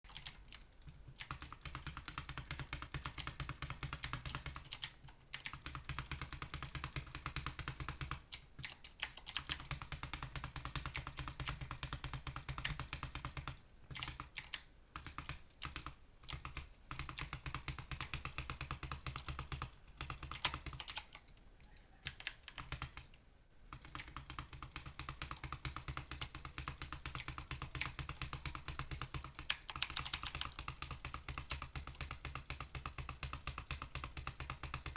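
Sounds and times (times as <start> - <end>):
rapid dense clicking: 23.7 - 34.9.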